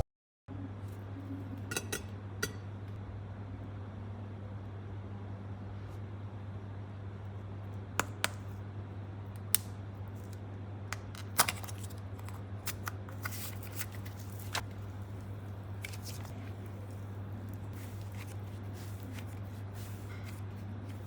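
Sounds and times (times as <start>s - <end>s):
steady low hum: 0.5s - 21.0s
small objects clicking and tapping: 11.0s - 13.0s.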